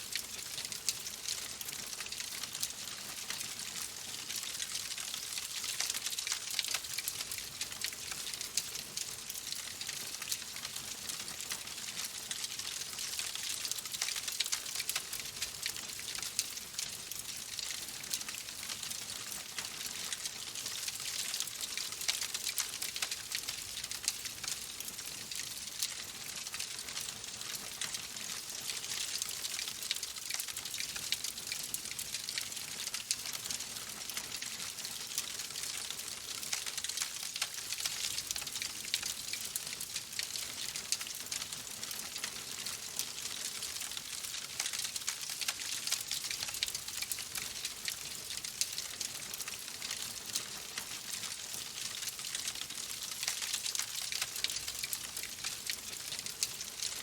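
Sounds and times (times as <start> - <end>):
wood fire crackling: 0.1 - 9.6, 41.9 - 50.4.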